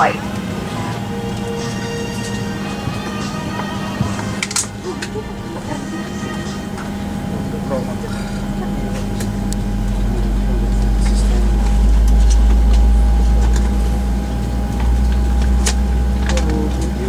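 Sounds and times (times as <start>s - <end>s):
airplane cabin hum: 0.0s - 17.0s
cabin murmurs: 0.0s - 17.0s.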